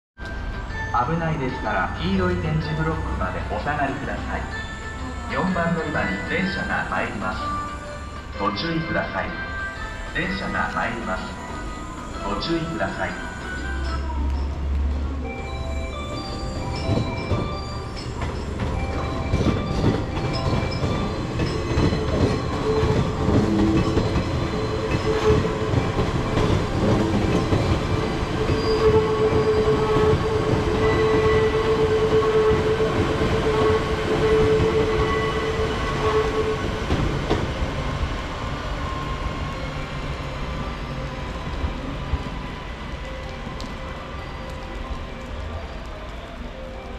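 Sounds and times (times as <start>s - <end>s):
high squeal: 9.4s - 14.7s, 20.3s - 32.8s
train wheels rumbling and clattering: 14.0s - 46.9s.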